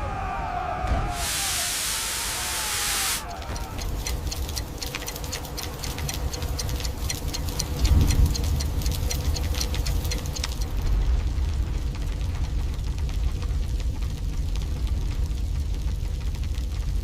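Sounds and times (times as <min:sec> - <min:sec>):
fire crackling: 0:00.0 - 0:17.0
low rumble: 0:03.4 - 0:17.0.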